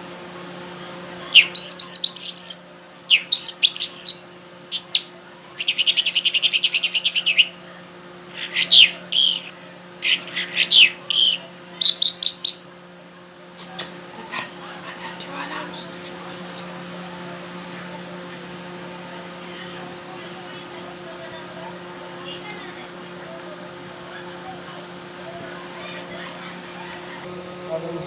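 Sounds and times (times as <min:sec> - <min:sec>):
songbird singing: 0:01.3 - 0:07.6, 0:08.3 - 0:12.7.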